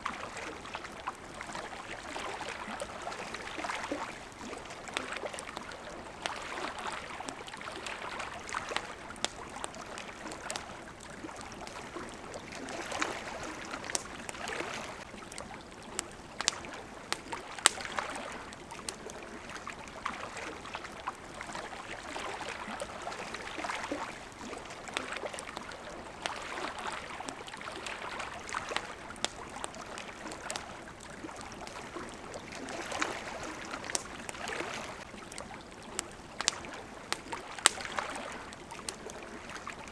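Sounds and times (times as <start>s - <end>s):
campfire crackling and popping: 0.0s - 39.9s
small waves lapping: 0.0s - 39.9s.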